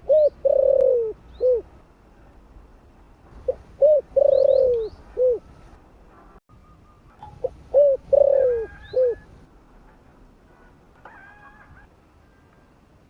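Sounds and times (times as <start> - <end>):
dove cooing: 0.0 - 1.7, 3.4 - 5.5, 7.4 - 9.5.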